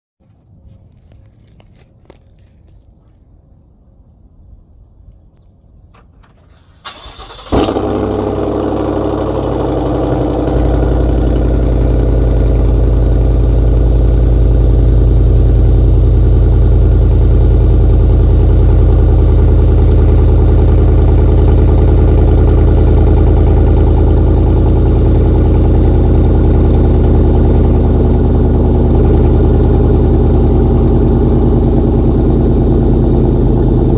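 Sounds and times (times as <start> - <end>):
engine cranking and starting: 6.3 - 9.0
loud deep engine idle: 7.2 - 33.9.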